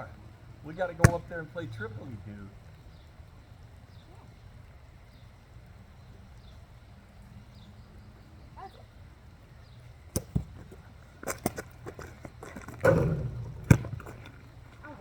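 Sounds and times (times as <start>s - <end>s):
basketball bouncing: 1.0s - 1.4s, 10.1s - 14.5s.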